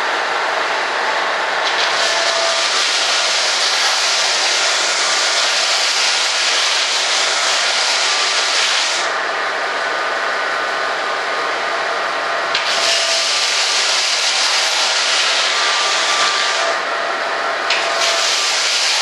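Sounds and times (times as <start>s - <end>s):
electric sander on foam: 1.7s - 9.1s, 12.6s - 16.9s, 17.8s - 19.0s.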